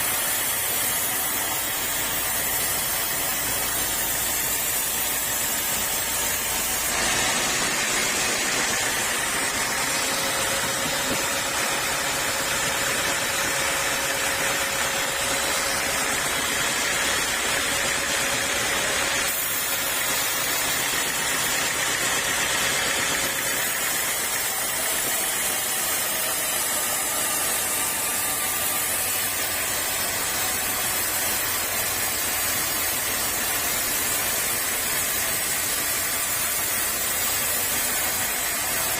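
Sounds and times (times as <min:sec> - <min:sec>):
sawmill saw rushing noise: 0:00.0 - 0:38.9.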